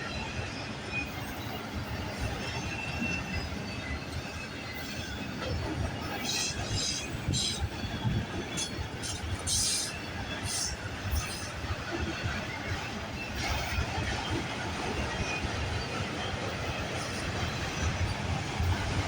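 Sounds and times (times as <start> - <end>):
freight train rumbling past: 0.0 - 19.0.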